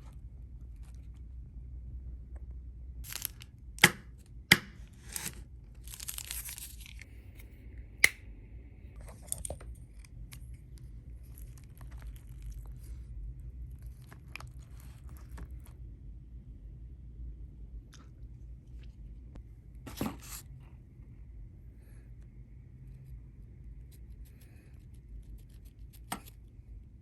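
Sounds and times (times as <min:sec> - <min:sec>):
food packaging tearing and crinkling: 0:03.0 - 0:07.1, 0:09.1 - 0:12.9.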